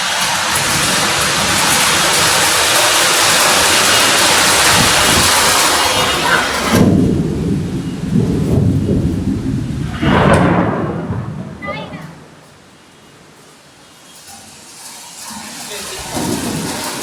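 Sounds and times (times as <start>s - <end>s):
hail and rain pelting: 0.0s - 17.0s
low rumble: 6.6s - 12.7s.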